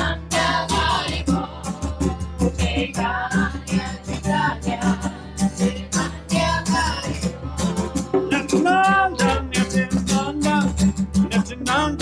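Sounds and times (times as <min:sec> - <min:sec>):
voices singing devotional chant: 0:00.0 - 0:09.2
rhythmic instrumental accompaniment: 0:00.0 - 0:12.0.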